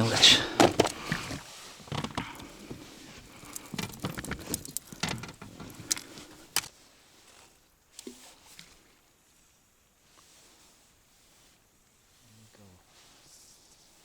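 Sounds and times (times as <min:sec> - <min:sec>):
fishing tackle clicks and rattles: 0:00.3 - 0:06.7.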